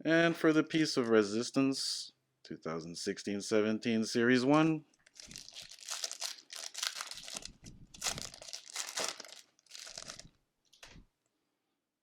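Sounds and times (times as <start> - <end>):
foil card wrapper tearing: 5.1 - 10.3.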